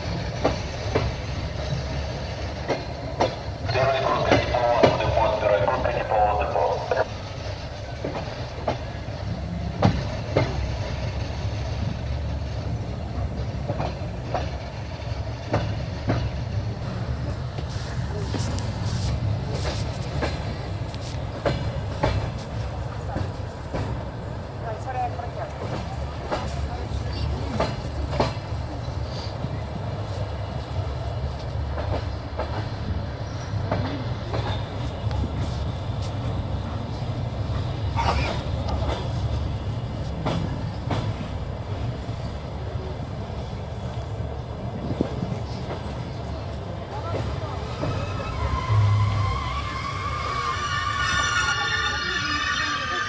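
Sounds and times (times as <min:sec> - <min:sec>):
train wheels rumbling on rails: 0:00.0 - 0:53.0
wheels clacking over rail joints: 0:44.8 - 0:53.0.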